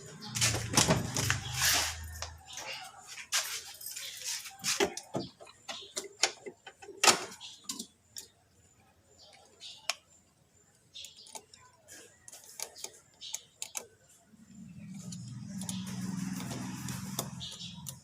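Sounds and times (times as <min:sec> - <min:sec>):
hand tools clicking and tapping: 0:11.0 - 0:13.9, 0:15.0 - 0:18.0.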